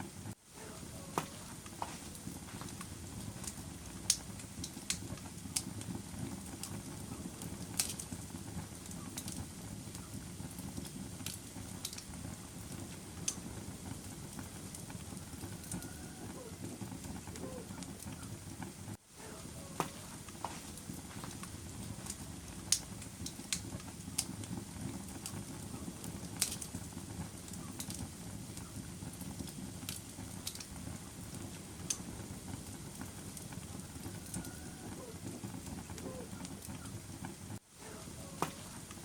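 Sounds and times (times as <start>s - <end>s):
fire popping and crackling: 0.0s - 39.0s
low rustle of flames: 0.0s - 39.0s.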